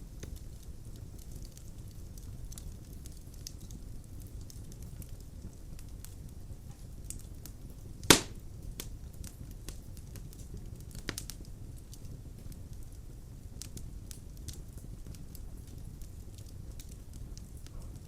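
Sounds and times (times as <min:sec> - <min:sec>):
wood fire burning: 0:00.0 - 0:18.0
loud fire pop: 0:08.0 - 0:08.4.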